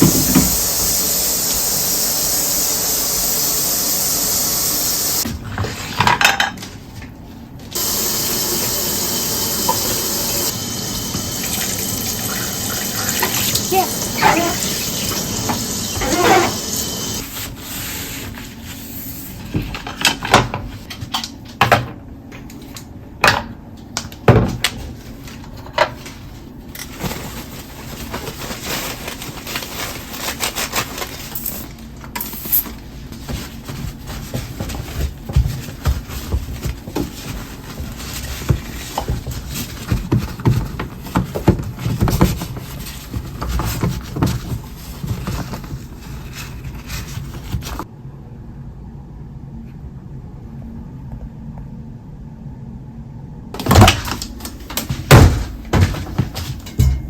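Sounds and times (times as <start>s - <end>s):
running water: 0.0s - 5.2s, 7.8s - 17.2s
dishes and utensils clinking: 56.4s - 57.0s.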